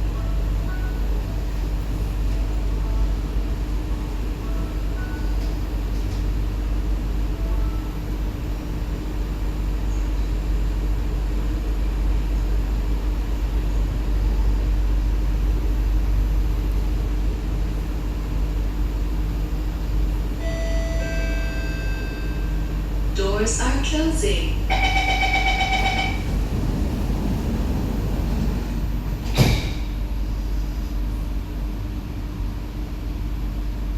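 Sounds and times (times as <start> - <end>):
train car hum and rumble: 0.0 - 33.9
multi-tone door chime: 24.7 - 26.4.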